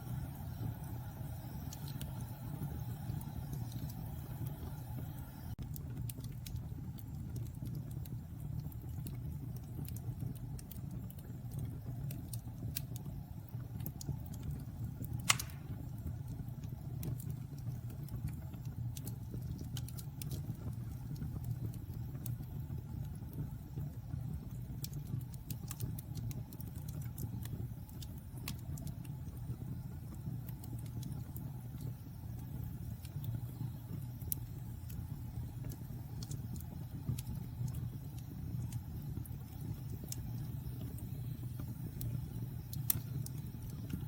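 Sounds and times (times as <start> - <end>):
wood fire crackling: 0.0 - 44.0
sharp loud pop of fire: 15.2 - 15.8.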